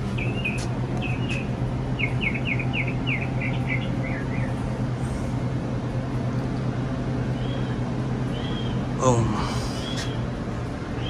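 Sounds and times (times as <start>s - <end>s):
low mechanical hum: 0.0s - 11.0s
songbird chirping: 0.1s - 4.7s.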